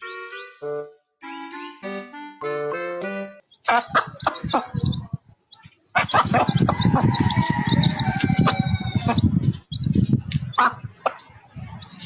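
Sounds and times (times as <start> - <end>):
birds calling: 2.8 - 12.0.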